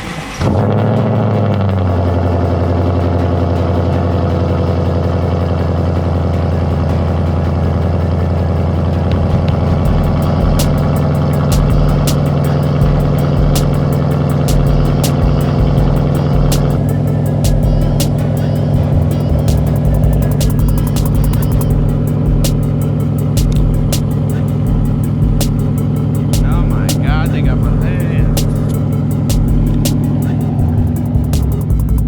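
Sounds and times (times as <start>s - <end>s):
car engine idling: 0.0s - 32.0s
music beat with ticks and thumps: 0.0s - 32.0s.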